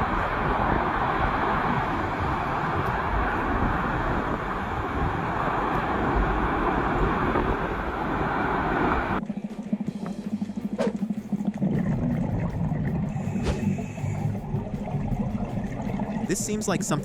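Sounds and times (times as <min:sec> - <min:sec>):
loud steady rushing noise: 0:00.0 - 0:09.8
music: 0:09.2 - 0:17.0.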